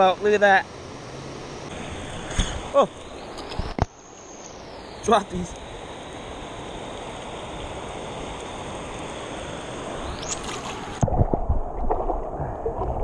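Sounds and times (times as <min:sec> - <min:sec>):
river water rushing: 0:00.6 - 0:11.0
low knocks and thumps: 0:11.0 - 0:13.0.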